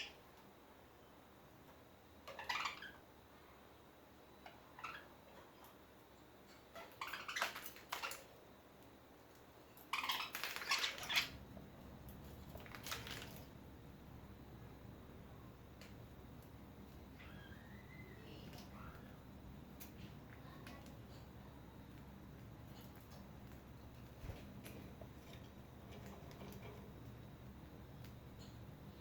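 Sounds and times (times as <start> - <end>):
budgies rustling: 6.7 - 8.3, 9.8 - 13.6.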